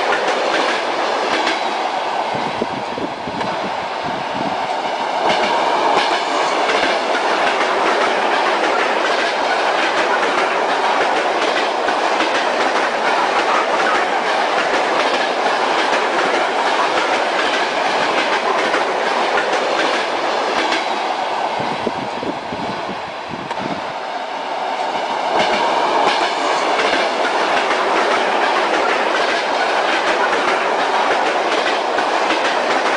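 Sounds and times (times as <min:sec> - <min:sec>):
train wheels clattering over rail joints: 0:00.0 - 0:01.8, 0:05.2 - 0:21.0, 0:25.2 - 0:32.9.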